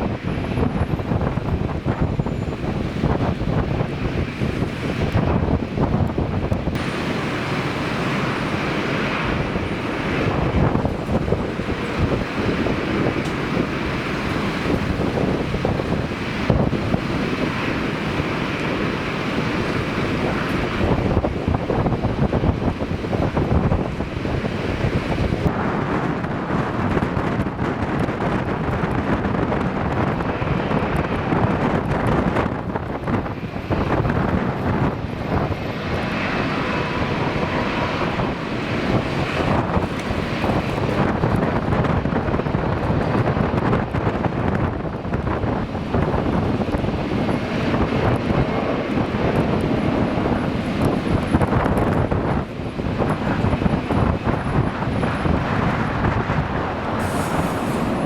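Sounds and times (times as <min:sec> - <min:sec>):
airliner engines roaring: 0:00.0 - 0:58.0
gusty wind buffeting microphone: 0:00.0 - 0:58.0.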